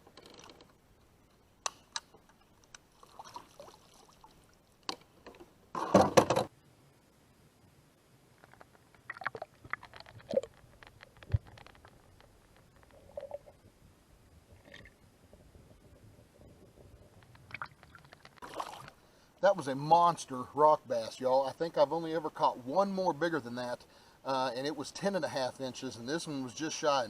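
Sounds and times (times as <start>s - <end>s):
water splashing: 2.9s - 4.9s, 17.4s - 19.0s
small clicks and knocks: 9.6s - 13.4s.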